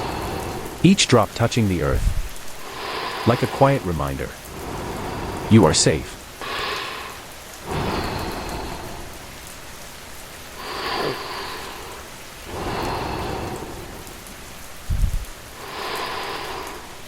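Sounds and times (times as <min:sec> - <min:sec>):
steady rainfall: 0:00.0 - 0:17.0
low rumble of thunder: 0:01.9 - 0:02.6, 0:14.8 - 0:15.4.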